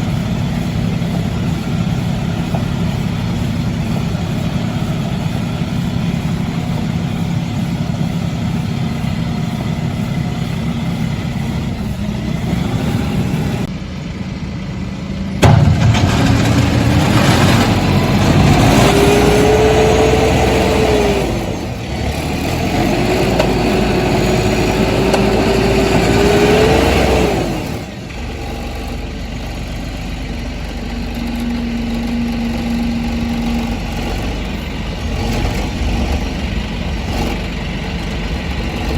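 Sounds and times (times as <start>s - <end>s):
tractor engine revving: 0.0s - 38.9s.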